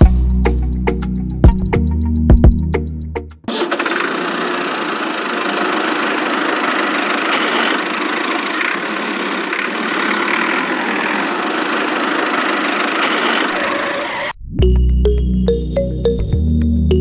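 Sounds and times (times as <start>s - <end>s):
small motor humming: 3.5s - 14.3s.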